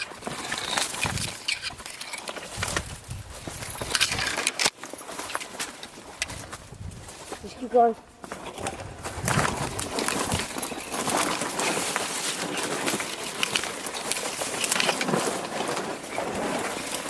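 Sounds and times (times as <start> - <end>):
footsteps crunching through dry brush: 0.0 - 17.0.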